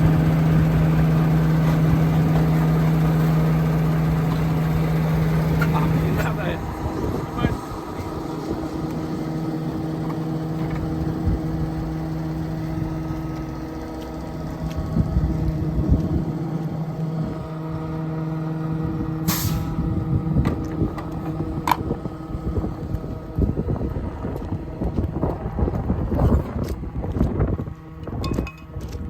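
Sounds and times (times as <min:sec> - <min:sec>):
diesel truck engine running: 0:00.0 - 0:29.0
air hiss: 0:19.3 - 0:19.8.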